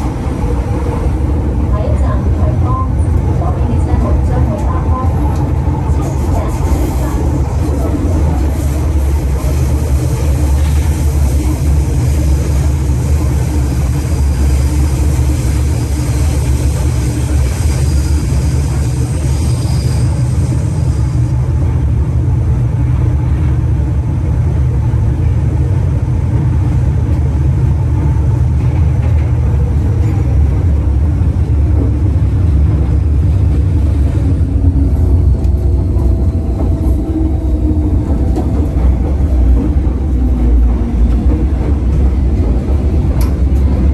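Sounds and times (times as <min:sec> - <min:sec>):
train running on track: 0:00.0 - 0:43.9.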